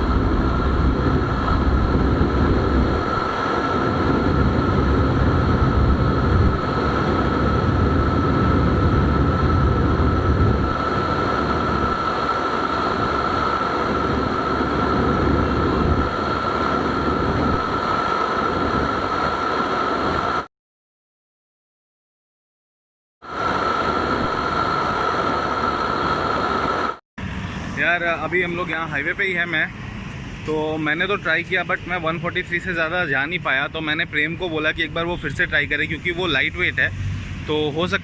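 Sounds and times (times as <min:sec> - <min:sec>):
motorcycle engine at high speed: 0:00.0 - 0:20.5
steady high whine: 0:00.0 - 0:20.5, 0:23.2 - 0:38.0
wind rushing over microphone: 0:00.0 - 0:20.5, 0:23.2 - 0:38.0.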